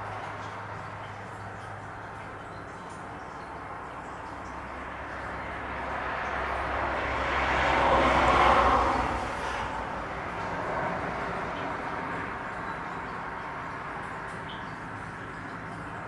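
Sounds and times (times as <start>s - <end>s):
vehicle passing by: 4.7s - 15.0s.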